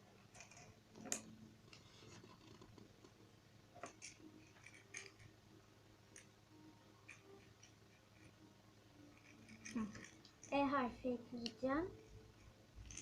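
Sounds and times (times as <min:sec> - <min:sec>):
beads clicking and tapping: 0:07.0 - 0:08.4.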